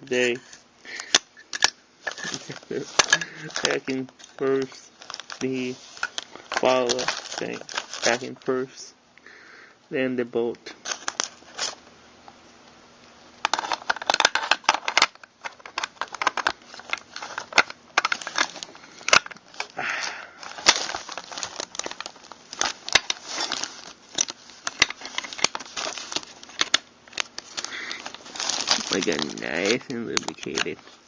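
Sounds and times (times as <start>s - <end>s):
metal gun parts clicking: 1.0s - 2.4s.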